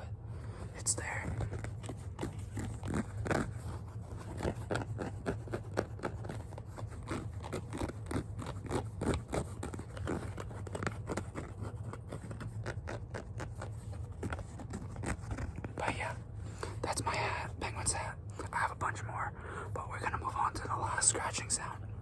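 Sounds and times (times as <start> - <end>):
scratching on a hard cap: 0.4 - 19.2, 19.8 - 21.8.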